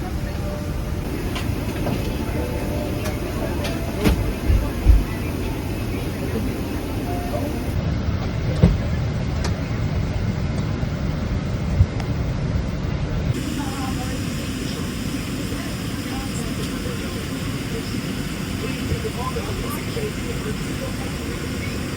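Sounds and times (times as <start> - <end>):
vehicle interior rumble: 0.0 - 7.8.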